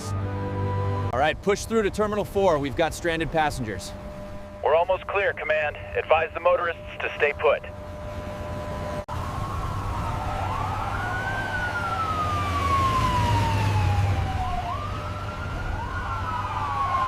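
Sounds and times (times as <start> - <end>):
siren wailing: 3.6 - 17.0.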